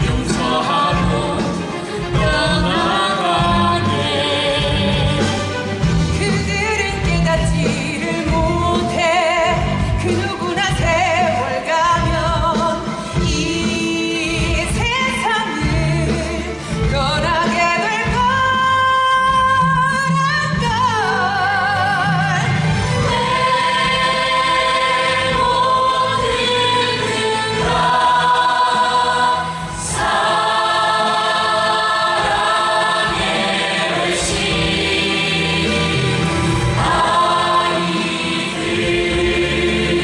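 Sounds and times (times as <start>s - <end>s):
voices singing with vibrato: 0.0s - 16.5s, 17.2s - 40.0s.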